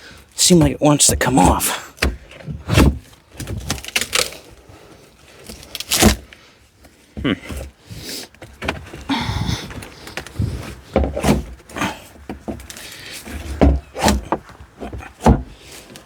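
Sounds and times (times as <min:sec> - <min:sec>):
crowbar banging plastic tank: 0:00.6 - 0:03.9, 0:13.4 - 0:15.6.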